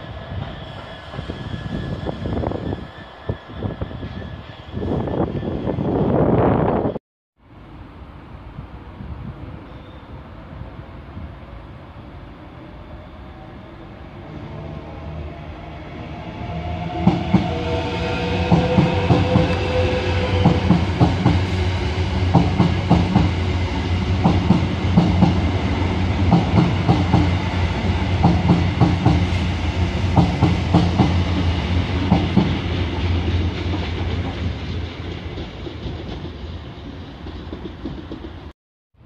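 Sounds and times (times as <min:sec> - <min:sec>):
electric train low hum: 0:00.0 - 0:38.5
train wheels clicking over rail joints: 0:30.1 - 0:38.5.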